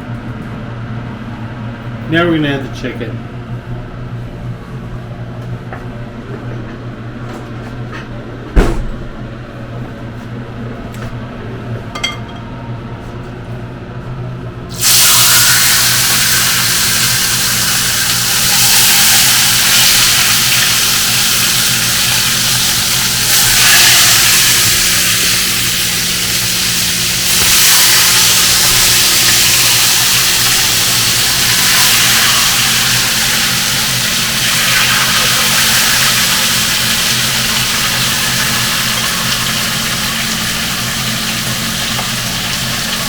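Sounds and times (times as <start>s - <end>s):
chicken sizzling in oil: 14.7s - 43.0s.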